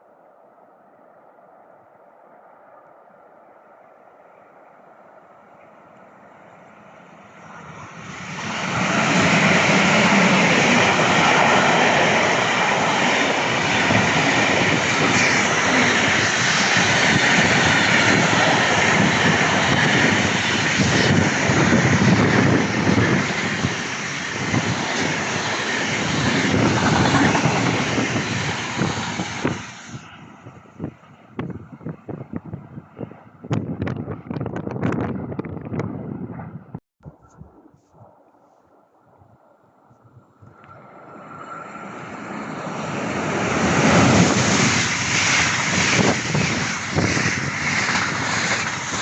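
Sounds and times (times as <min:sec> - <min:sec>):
train passing close by: 0:00.6 - 0:33.5, 0:40.6 - 0:49.0.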